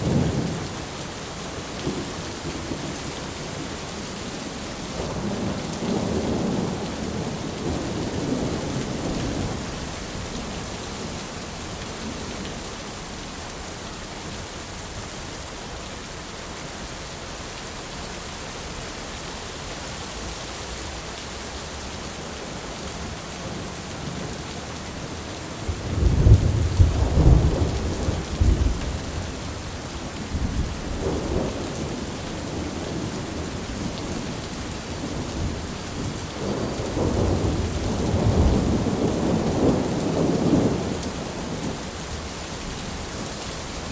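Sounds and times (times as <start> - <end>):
heavy rain: 0.0 - 43.9
thunder rumbling and cracking: 25.6 - 41.8.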